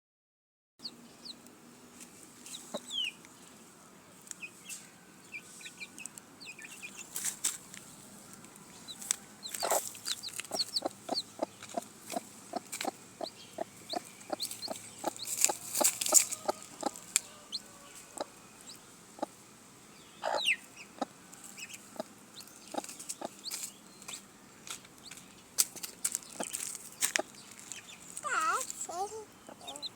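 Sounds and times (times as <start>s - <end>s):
chickens clucking: 8.8s - 19.4s, 20.2s - 24.2s, 25.0s - 29.9s.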